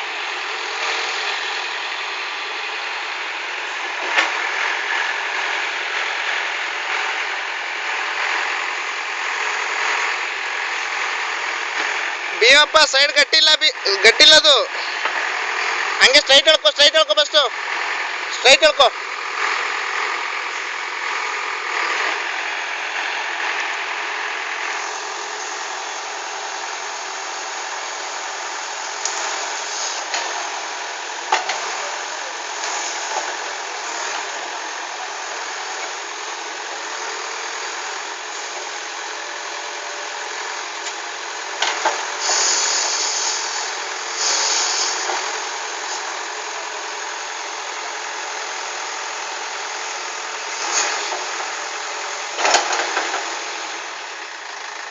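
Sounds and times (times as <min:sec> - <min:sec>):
diesel engine running: 0:00.0 - 0:54.9
short bursts of hiss: 0:44.2 - 0:45.1.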